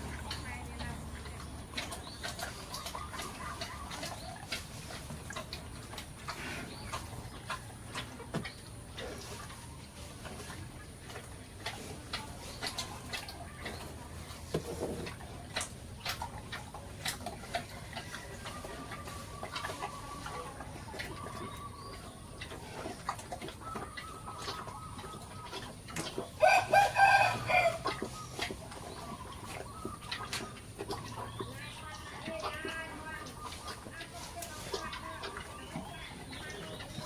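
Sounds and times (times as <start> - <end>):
chickens clucking: 0.0 - 37.0
rooster crowing: 26.4 - 27.8.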